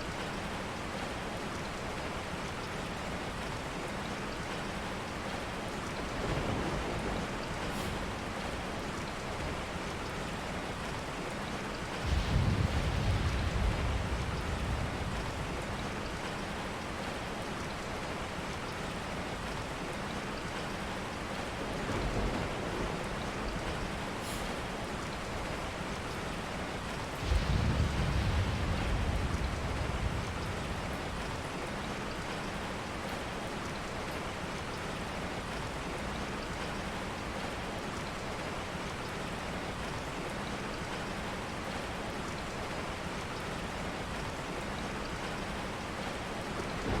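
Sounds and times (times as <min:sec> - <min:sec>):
steady rain falling: 0:00.0 - 0:47.0
low rumbles: 0:12.0 - 0:17.0, 0:27.1 - 0:31.8.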